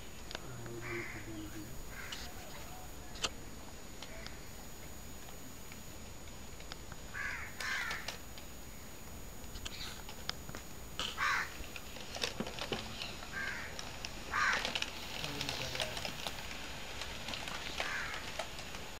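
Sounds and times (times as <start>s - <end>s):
bird calling: 0.0s - 3.4s, 7.1s - 10.2s, 11.0s - 16.4s, 17.4s - 18.4s.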